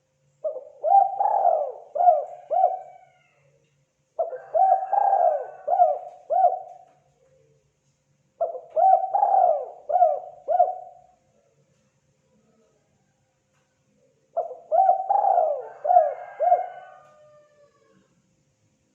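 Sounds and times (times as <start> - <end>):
dove cooing: 0.4 - 3.3, 4.2 - 6.9, 8.4 - 11.1, 14.4 - 18.0.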